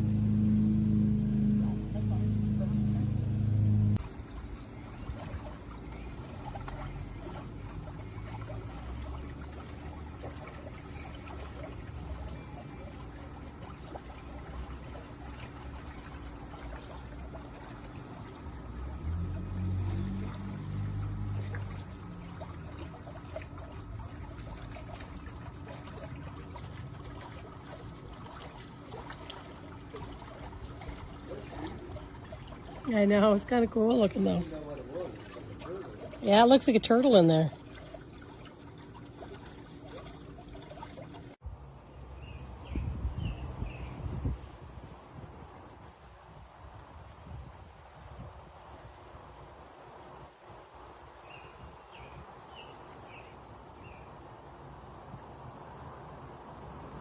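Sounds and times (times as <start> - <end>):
machine hum: 0.0 - 14.6
water trickling and lapping: 0.0 - 41.4, 42.2 - 57.0
low hum: 0.0 - 42.0.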